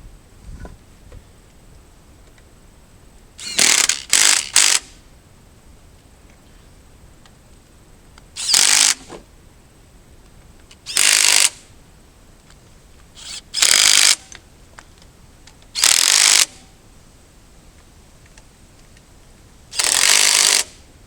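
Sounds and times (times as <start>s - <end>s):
ratchet wrench ratcheting: 3.4s - 4.9s, 8.4s - 9.0s, 10.9s - 11.6s, 13.2s - 14.3s, 15.8s - 16.5s, 19.7s - 20.8s.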